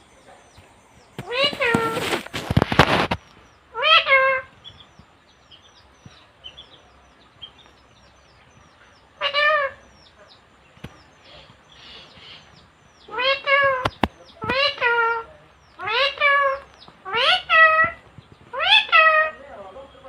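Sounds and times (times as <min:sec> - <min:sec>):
parrot squawking: 0:01.2 - 0:02.2, 0:03.7 - 0:04.8, 0:09.1 - 0:10.2, 0:11.3 - 0:19.4.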